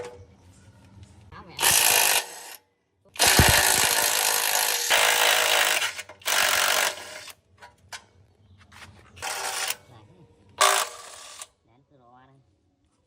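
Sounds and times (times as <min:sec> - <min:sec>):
power tool running in bursts: 0:03.2 - 0:07.3.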